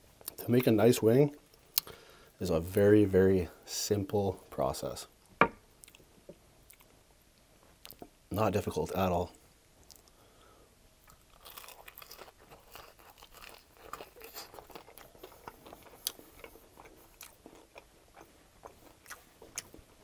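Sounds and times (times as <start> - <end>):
crunching and chewing chicken wing: 11.0 - 20.0.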